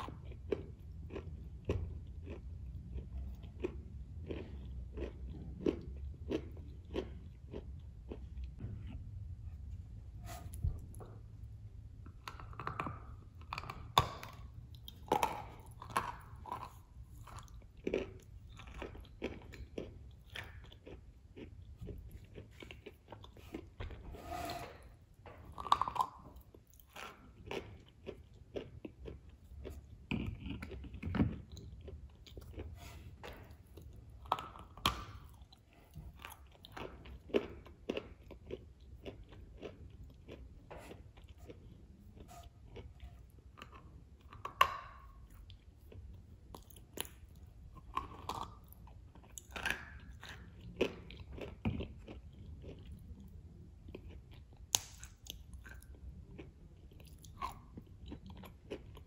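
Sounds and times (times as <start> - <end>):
chewing with wet mouth clicks: 0.0 - 9.0, 12.0 - 23.9, 25.3 - 59.0.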